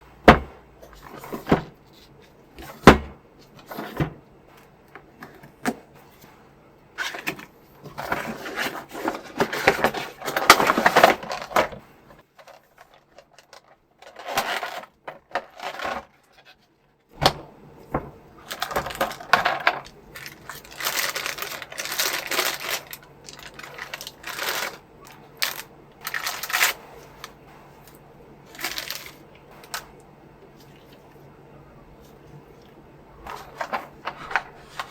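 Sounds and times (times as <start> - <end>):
packaging rustling and crinkling: 7.0 - 16.7, 17.8 - 30.0, 32.0 - 34.9.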